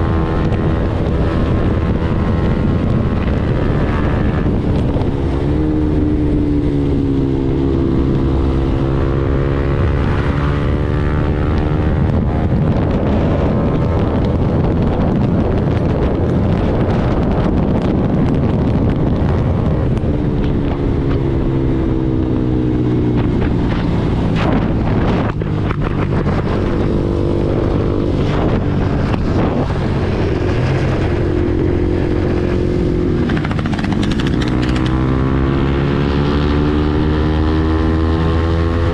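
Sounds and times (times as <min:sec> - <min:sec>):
motorcycle engine running hard: 0:00.0 - 0:38.9
sharp clicks: 0:33.2 - 0:35.0.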